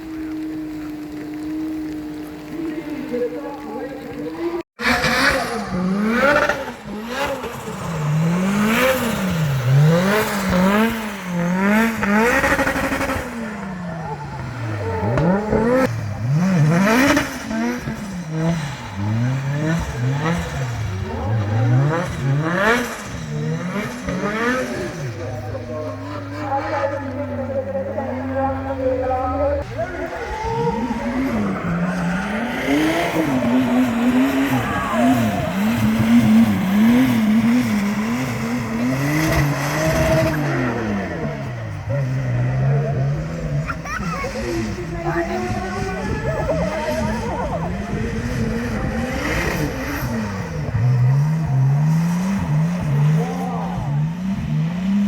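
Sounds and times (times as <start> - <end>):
car engine revving hard: 4.3 - 27.4, 28.0 - 55.0.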